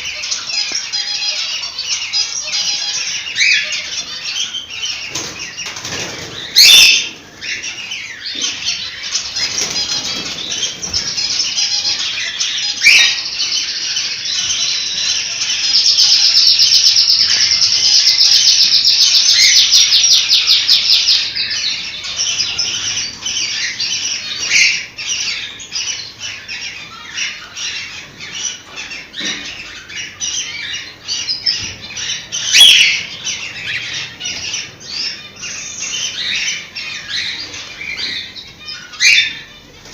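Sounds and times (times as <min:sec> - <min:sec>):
cockatiels chirping and calling: 0:00.0 - 0:39.9.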